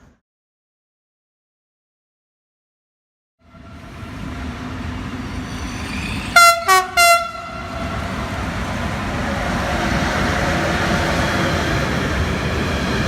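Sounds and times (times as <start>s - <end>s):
train rumble: 3.4s - 13.0s
two-tone locomotive horn: 6.3s - 8.2s.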